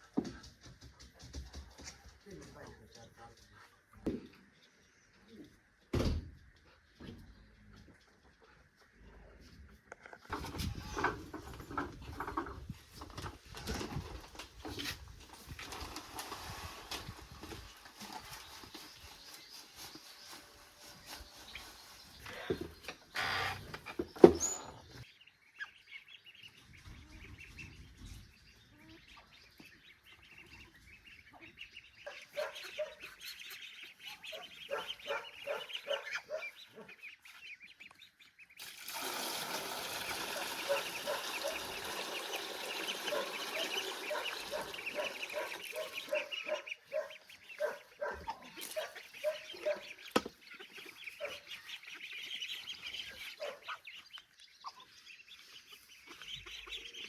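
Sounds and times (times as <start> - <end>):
poultry calling: 30.0 - 38.2, 40.2 - 57.0.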